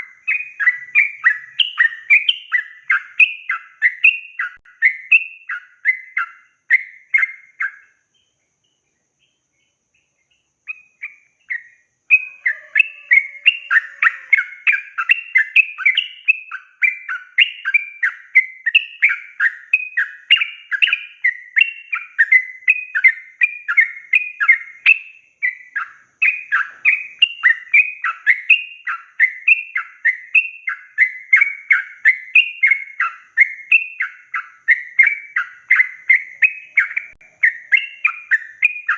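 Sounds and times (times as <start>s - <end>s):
bird bubbly chattering song: 0.0s - 8.0s, 10.7s - 38.9s.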